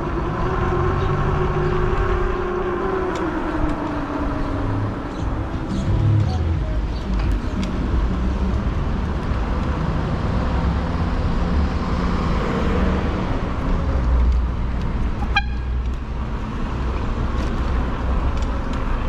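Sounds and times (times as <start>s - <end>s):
road and traffic noise: 0.0s - 19.0s
short horn toot: 15.2s - 15.8s.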